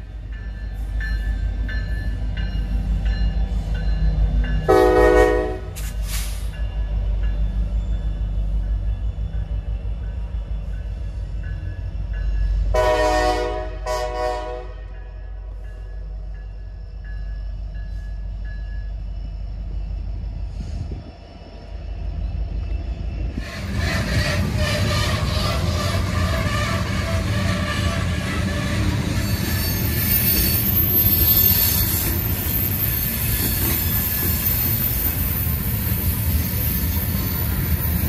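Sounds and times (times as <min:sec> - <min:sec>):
diesel locomotive rumble: 0:00.0 - 0:38.0
rail cars rolling past: 0:00.0 - 0:38.0
train horn blasts: 0:04.7 - 0:05.9, 0:12.7 - 0:15.1, 0:24.5 - 0:29.0.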